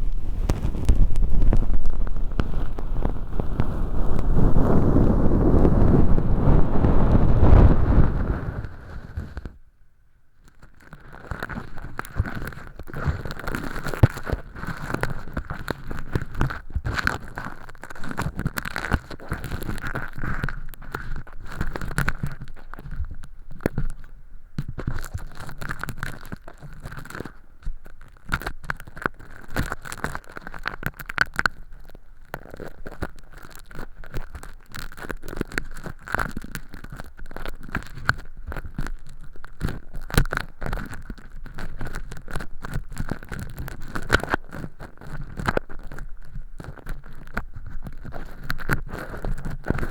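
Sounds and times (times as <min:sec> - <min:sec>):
crackling and rustling: 0:00.0 - 0:09.6, 0:10.4 - 0:49.9.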